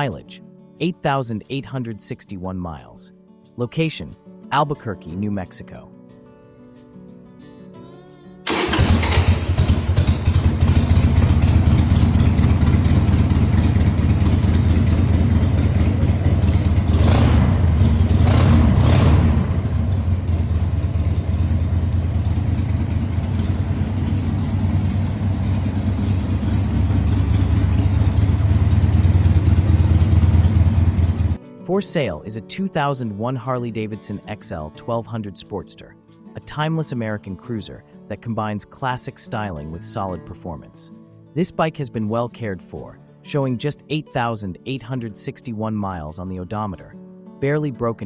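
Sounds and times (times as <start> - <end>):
motorcycle engine rumbling: 8.5 - 31.4.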